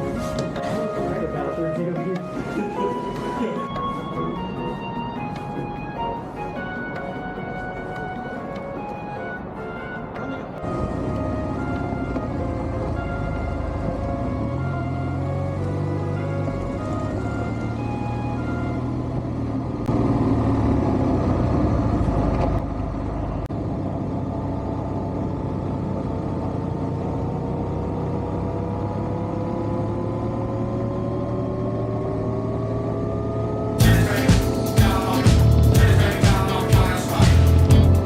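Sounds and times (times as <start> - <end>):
music: 0.0 - 19.5, 33.8 - 38.0
motorcycle engine running: 18.6 - 30.3.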